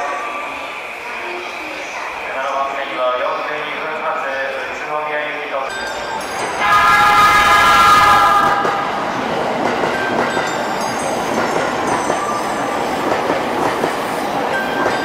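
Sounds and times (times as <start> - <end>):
train rumbling: 5.5 - 15.0
train horn: 6.6 - 8.9
wheels clattering on rails: 8.5 - 15.0.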